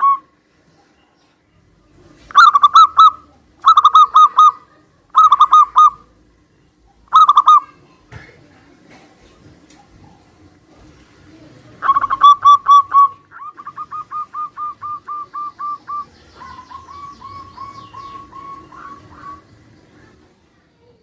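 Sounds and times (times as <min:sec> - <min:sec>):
doves cooing staccato: 0:02.3 - 0:06.2, 0:07.0 - 0:07.7, 0:11.8 - 0:20.4.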